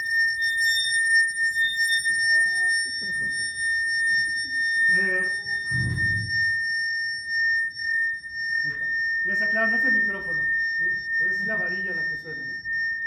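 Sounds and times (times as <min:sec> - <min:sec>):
high-pitched ringing metal rod: 0:00.0 - 0:13.0
low thump: 0:05.7 - 0:06.6.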